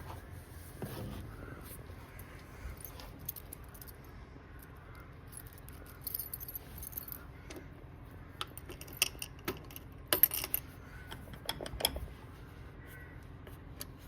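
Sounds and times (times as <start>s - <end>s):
keys jangling: 5.3s - 7.2s
metallic clicks and rattles: 8.4s - 12.1s.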